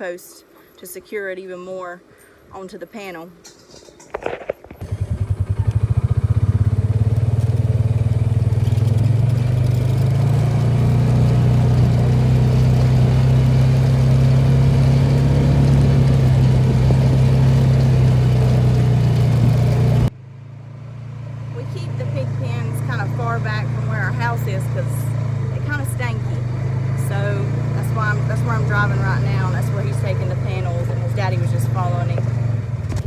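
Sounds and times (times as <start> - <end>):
vehicle engine droning: 4.8 - 33.0.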